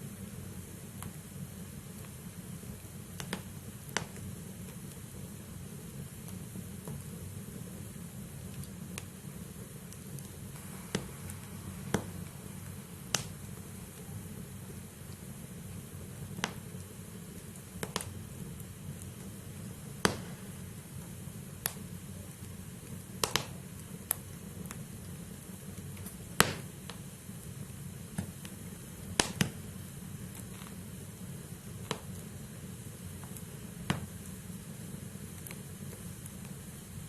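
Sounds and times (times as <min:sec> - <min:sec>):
flames rushing: 0:00.0 - 0:37.0
firewood popping and snapping: 0:03.1 - 0:05.1, 0:08.5 - 0:27.1, 0:28.0 - 0:30.9, 0:31.6 - 0:34.4.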